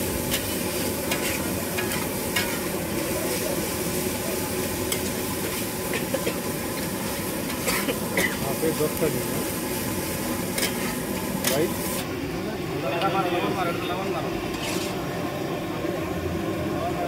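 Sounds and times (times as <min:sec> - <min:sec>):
food sizzling in a pan: 0:00.0 - 0:12.1
spatula scraping a pan: 0:00.3 - 0:02.7, 0:14.5 - 0:15.0.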